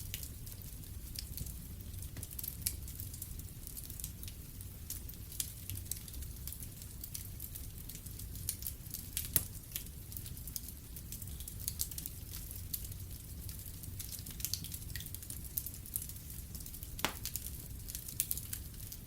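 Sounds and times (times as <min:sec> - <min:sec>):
wood fire crackling: 0:00.0 - 0:19.0
fire popping: 0:07.8 - 0:19.0.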